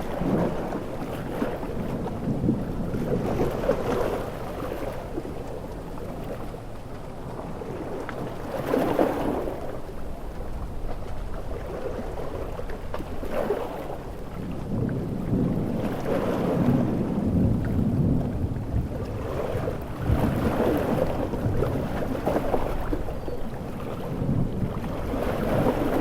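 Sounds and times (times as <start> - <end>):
rumbling thunder: 0.0 - 5.5, 14.4 - 26.0
sea waves: 0.0 - 26.0
heavy rain: 14.5 - 23.0.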